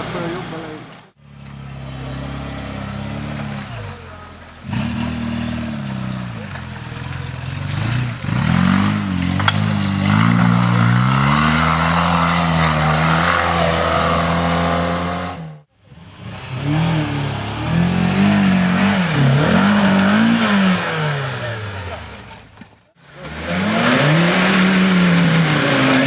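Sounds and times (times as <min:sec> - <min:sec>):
engine revving hard: 0:04.6 - 0:06.4, 0:07.1 - 0:22.1, 0:23.1 - 0:26.0.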